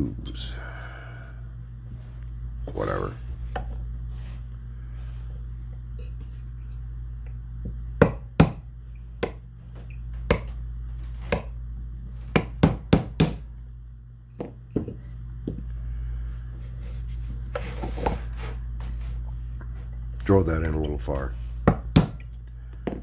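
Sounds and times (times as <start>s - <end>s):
small hammer tapping metal: 10.3s - 10.6s, 12.3s - 13.4s.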